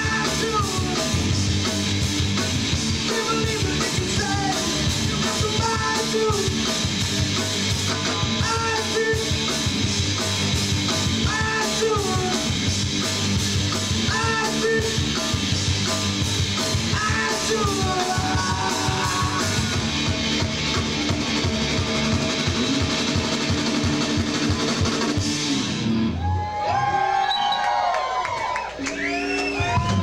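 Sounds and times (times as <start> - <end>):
person singing: 0.0 - 1.3, 2.9 - 6.8, 8.3 - 9.6, 11.2 - 12.6, 13.9 - 15.3, 16.8 - 19.9
electric guitar: 0.0 - 27.0
bass guitar: 0.0 - 30.0
drums: 0.0 - 30.0.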